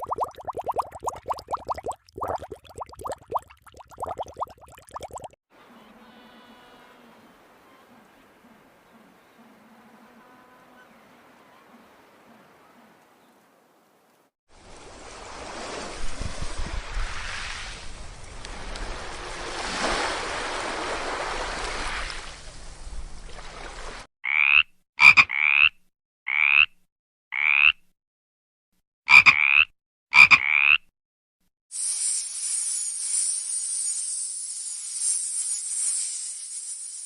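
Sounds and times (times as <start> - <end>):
high hiss: 31.8 - 37.0.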